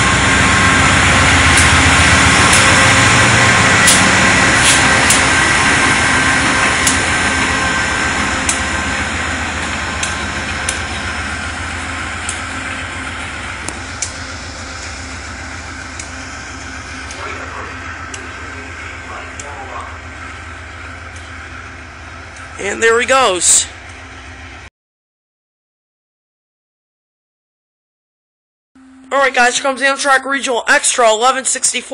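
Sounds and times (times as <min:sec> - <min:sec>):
diesel locomotive engine rumbling: 0:00.0 - 0:24.7.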